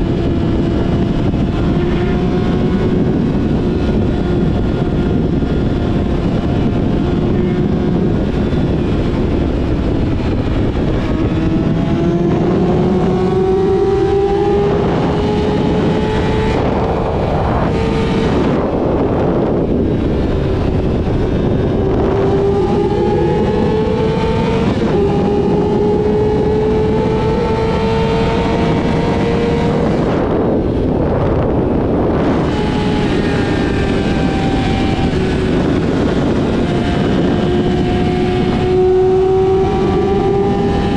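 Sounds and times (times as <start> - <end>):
motorcycle engine revving: 0.0 - 40.9
wind rushing: 0.0 - 40.9.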